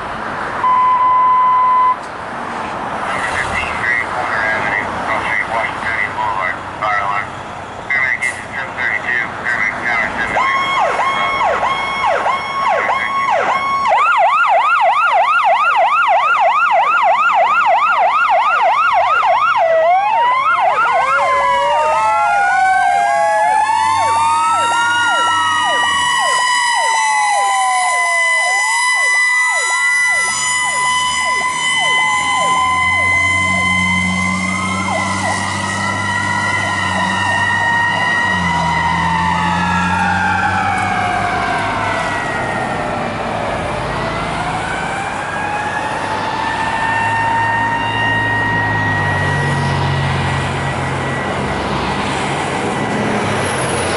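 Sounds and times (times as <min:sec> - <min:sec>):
fire engine low hum: 0:00.0 - 0:53.9
electronic siren yelping and wailing: 0:00.6 - 0:02.0, 0:07.9 - 0:53.0
second siren winding up: 0:00.6 - 0:02.0, 0:10.4 - 0:42.6.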